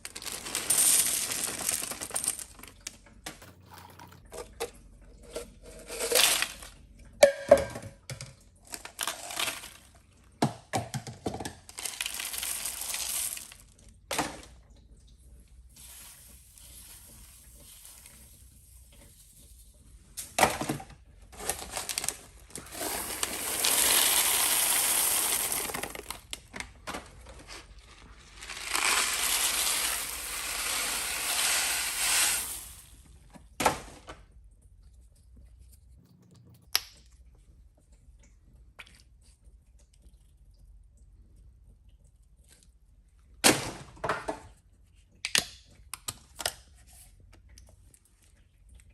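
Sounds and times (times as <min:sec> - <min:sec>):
toilet flushing: 0:12.6 - 0:26.3, 0:27.4 - 0:33.3.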